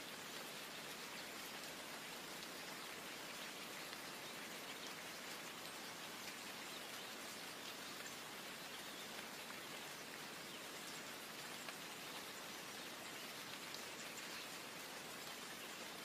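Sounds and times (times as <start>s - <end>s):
soft rain hiss: 0.0s - 16.0s
raindrop ticks: 9.0s - 12.4s.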